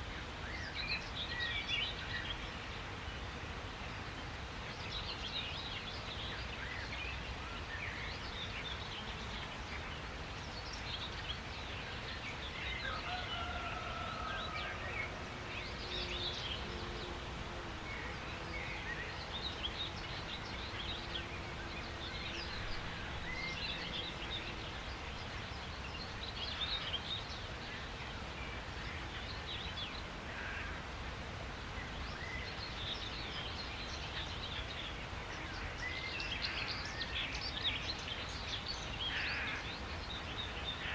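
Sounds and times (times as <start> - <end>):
outdoor background hiss: 0.0 - 40.9
birds chirping and trilling: 4.8 - 30.8.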